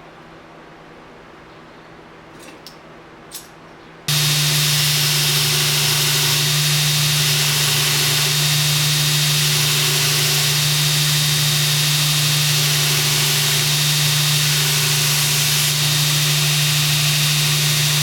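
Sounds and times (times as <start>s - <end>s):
shop machine humming and hissing: 4.1s - 18.0s.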